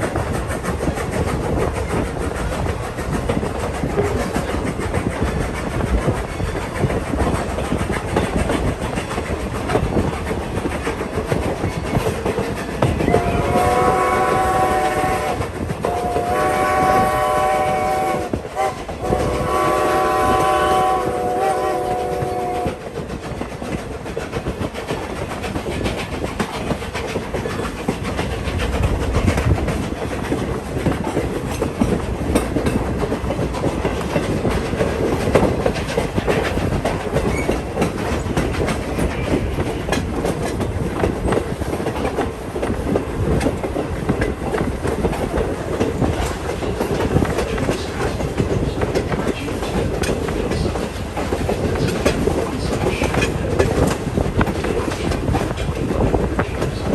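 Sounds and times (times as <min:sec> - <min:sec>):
train wheels clickety-clack on track: 0:00.0 - 0:56.9.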